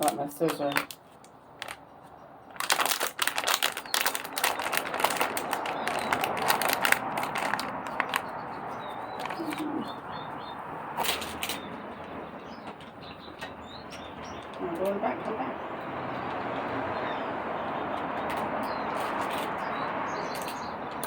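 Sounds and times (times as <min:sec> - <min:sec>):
small birds chirping: 0:00.0 - 0:21.0
rustling: 0:02.5 - 0:10.0.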